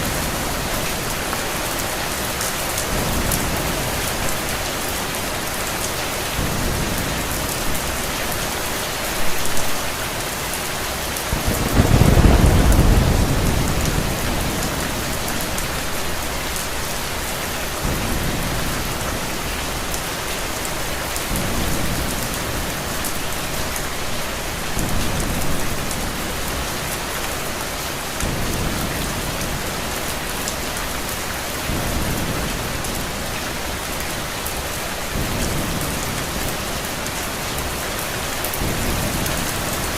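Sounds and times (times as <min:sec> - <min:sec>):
steady rain: 0:00.0 - 0:39.9
thunder rolling: 0:11.3 - 0:19.2.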